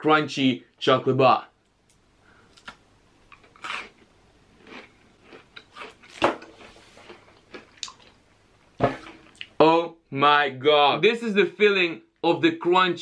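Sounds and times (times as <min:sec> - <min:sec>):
chocolate bar crunching: 0:02.5 - 0:08.2.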